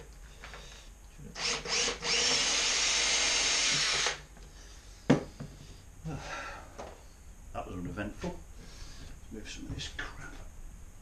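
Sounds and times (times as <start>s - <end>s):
electric drill boring into metal: 1.4s - 4.2s.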